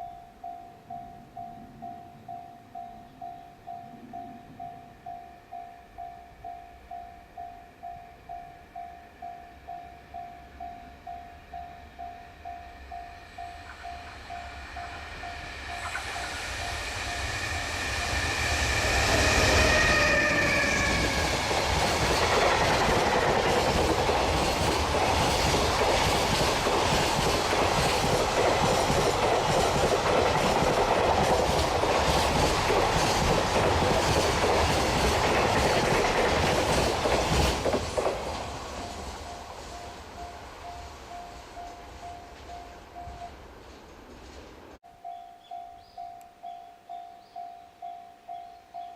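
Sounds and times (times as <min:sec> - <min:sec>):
electric locomotive whine: 0:00.0 - 0:48.9
wagon wheels clicking over rail joints: 0:19.2 - 0:39.2.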